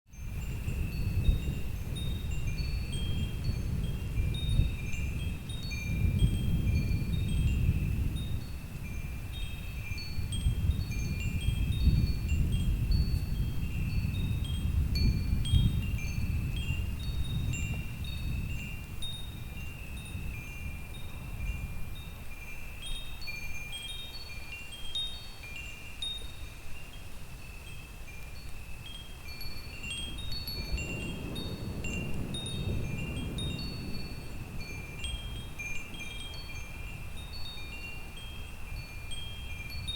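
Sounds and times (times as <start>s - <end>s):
low gusting wind: 0.1s - 39.9s
wind chimes ringing: 0.1s - 39.9s.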